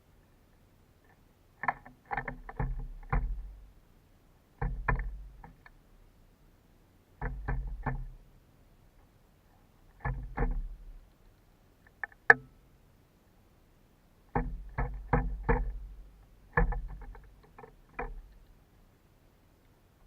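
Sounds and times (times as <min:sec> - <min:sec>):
bird pecking at feeder: 0:01.6 - 0:03.6, 0:04.6 - 0:05.8, 0:07.2 - 0:08.2, 0:09.9 - 0:11.1, 0:14.3 - 0:18.6.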